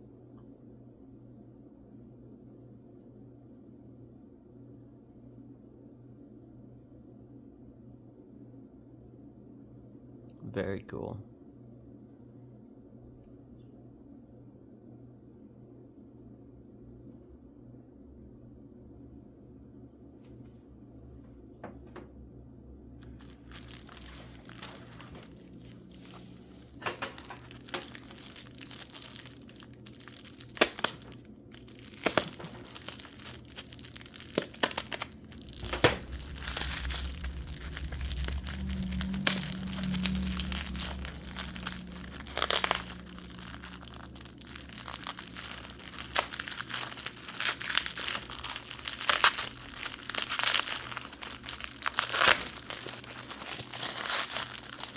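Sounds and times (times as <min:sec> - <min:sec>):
packing material crinkling: 0:23.0 - 0:54.9.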